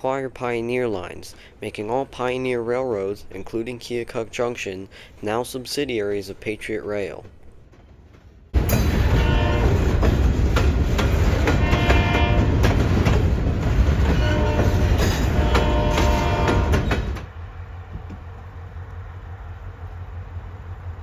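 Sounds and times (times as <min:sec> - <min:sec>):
passing train rumble: 0:07.3 - 0:21.0
locomotive horn: 0:08.6 - 0:10.1, 0:11.4 - 0:12.8, 0:14.0 - 0:17.2.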